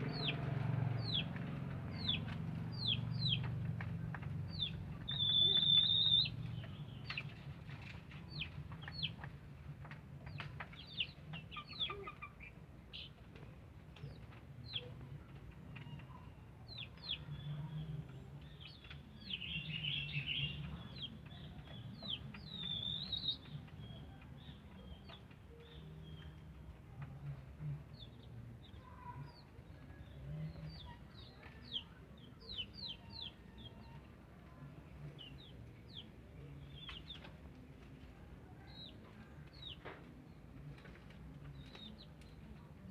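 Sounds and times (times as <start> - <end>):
birds chirping: 0.0 - 3.6, 4.5 - 7.3, 16.0 - 26.4.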